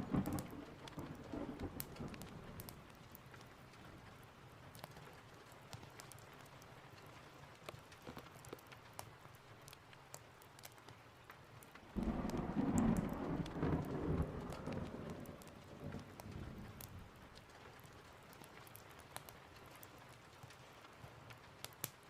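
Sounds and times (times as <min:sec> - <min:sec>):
thunder rumble: 0:00.0 - 0:03.0, 0:12.0 - 0:17.3
fireplace crackles: 0:00.0 - 0:22.0
steady rain: 0:00.0 - 0:22.0.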